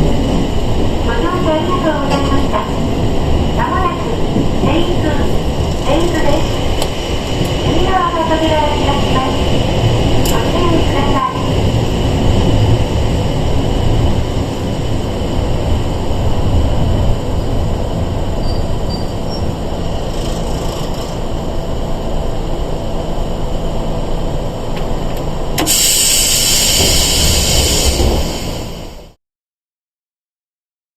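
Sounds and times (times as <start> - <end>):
train low rumble: 0.0 - 29.2
loud hiss of air: 25.6 - 29.1.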